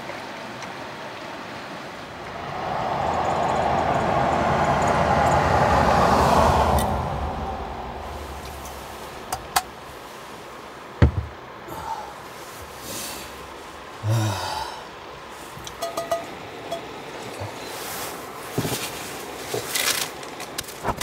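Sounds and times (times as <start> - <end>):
loud thump: 11.0 - 11.3
breathy sigh: 11.7 - 12.2, 14.0 - 15.0.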